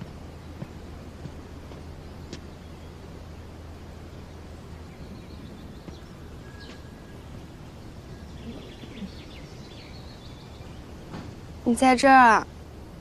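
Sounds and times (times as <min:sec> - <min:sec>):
steady low hum: 0:00.0 - 0:13.0
small bird chirps: 0:04.1 - 0:11.8.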